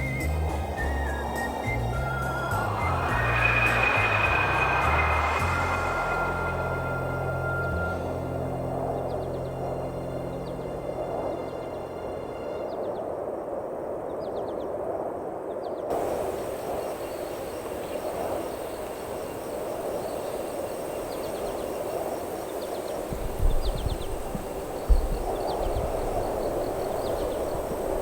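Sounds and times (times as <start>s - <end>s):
faint high chirps: 0.0s - 9.5s
music: 0.0s - 13.3s
low thumps: 0.2s - 8.8s.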